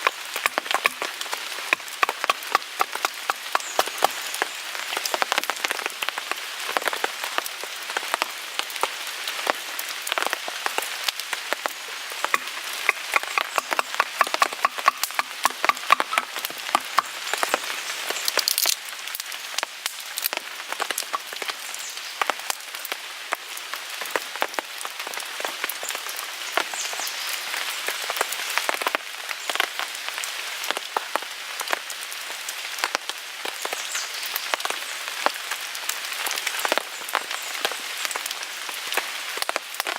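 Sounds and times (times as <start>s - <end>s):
wood fire crackling and popping: 0.0s - 6.2s, 10.0s - 21.6s
rain on a tarp: 0.0s - 39.9s.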